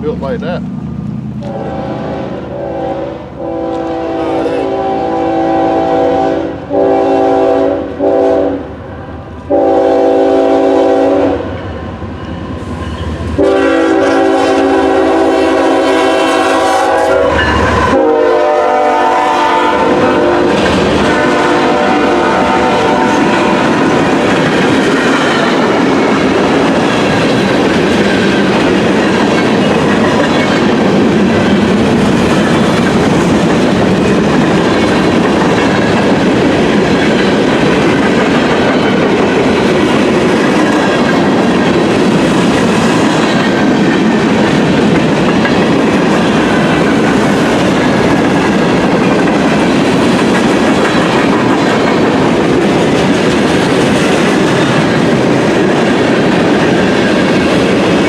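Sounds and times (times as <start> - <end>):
train wheels clattering over rails: 19.4 - 58.0.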